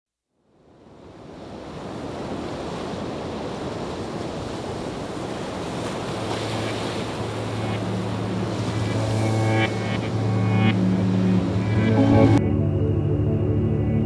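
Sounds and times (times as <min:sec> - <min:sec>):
rushing water: 0:00.7 - 0:12.4
background music low tone: 0:06.4 - 0:14.0.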